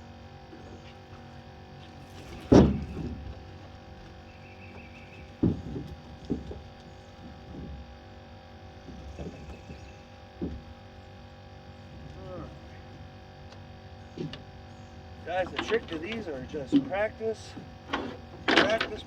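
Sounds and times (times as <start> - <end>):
steady low hum: 0.0 - 19.0
thumps and knocks in a boat: 2.1 - 11.1, 14.1 - 14.5, 15.3 - 19.0.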